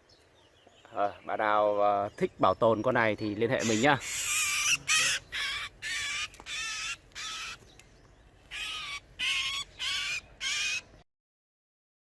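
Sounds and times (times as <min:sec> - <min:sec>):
bird giving harsh rasping calls: 0:03.4 - 0:07.7, 0:08.4 - 0:11.0.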